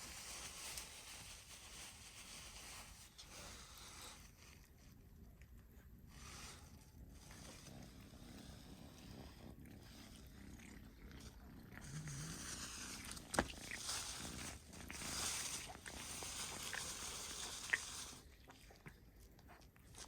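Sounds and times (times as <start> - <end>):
cat chewing food: 7.0 - 20.0.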